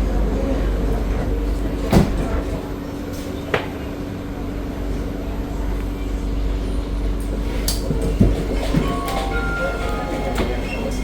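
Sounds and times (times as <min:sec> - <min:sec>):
train rumble and hum: 0:00.0 - 0:11.0.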